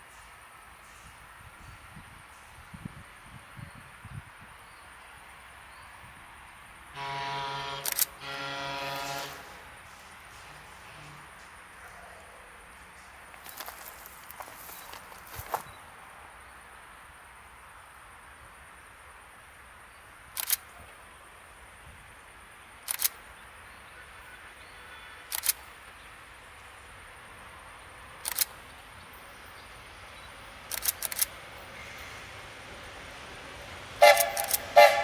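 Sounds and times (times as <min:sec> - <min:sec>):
faint outdoor background: 0:00.0 - 0:35.0
sharp short clicks: 0:07.8 - 0:08.2, 0:20.4 - 0:20.7, 0:22.8 - 0:23.2, 0:25.3 - 0:25.6, 0:28.2 - 0:28.6, 0:30.7 - 0:31.3, 0:34.1 - 0:34.8.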